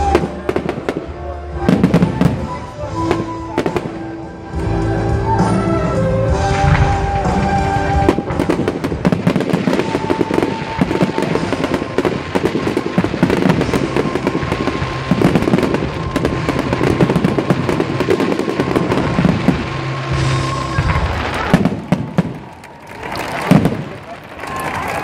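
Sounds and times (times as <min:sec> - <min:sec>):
rapid firework crackling: 0:06.5 - 0:25.0.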